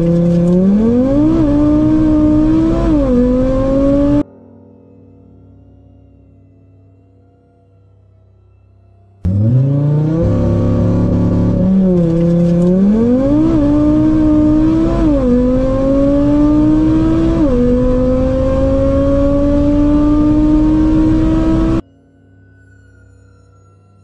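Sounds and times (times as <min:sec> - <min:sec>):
car engine accelerating: 0:00.0 - 0:04.2, 0:09.3 - 0:21.8.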